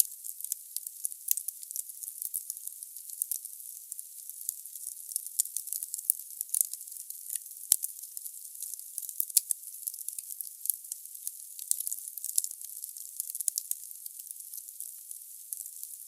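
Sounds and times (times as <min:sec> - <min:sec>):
wood fire crackling: 0:11.6 - 0:14.6.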